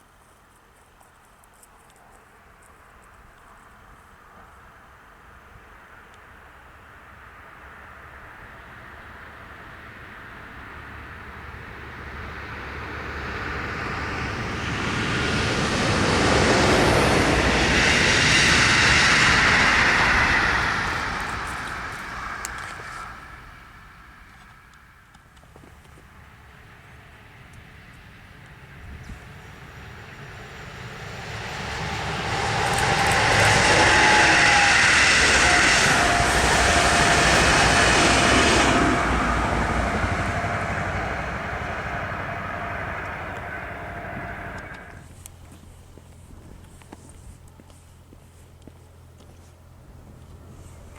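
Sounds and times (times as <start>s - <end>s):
train passing by: 3.6s - 45.4s
faint whine: 28.9s - 45.0s.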